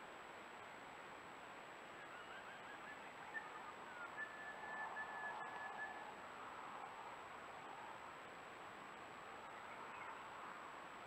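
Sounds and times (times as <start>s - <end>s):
thin bird whistle: 2.0s - 6.1s.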